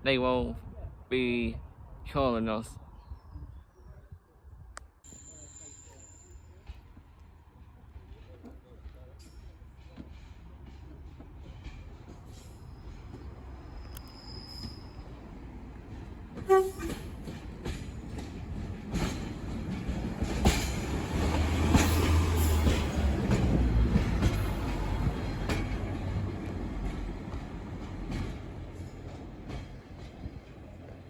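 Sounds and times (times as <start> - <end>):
train rumble and clatter: 5.1 - 31.0
train horn toot: 16.4 - 17.2.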